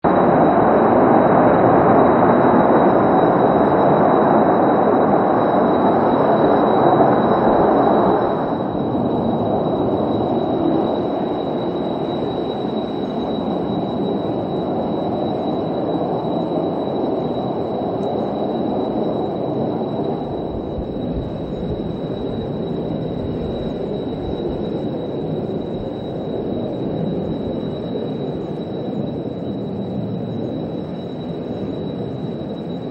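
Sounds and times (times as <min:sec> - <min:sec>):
jet engine roar: 0:00.0 - 0:32.9.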